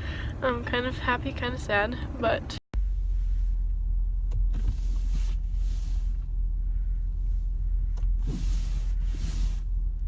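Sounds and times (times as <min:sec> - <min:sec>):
car engine low rumble: 0:00.0 - 0:10.0
windshield wipers swishing: 0:08.0 - 0:09.7.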